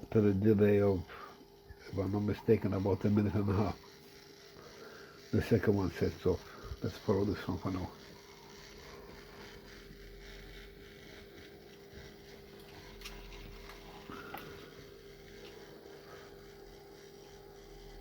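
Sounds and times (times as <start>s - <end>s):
model train hum and whine: 1.1s - 18.0s.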